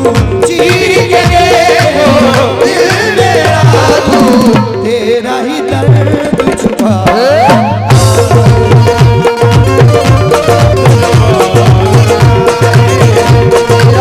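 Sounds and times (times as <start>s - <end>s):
tabla drumming: 0.0s - 14.0s
ornamented melody: 7.1s - 14.0s.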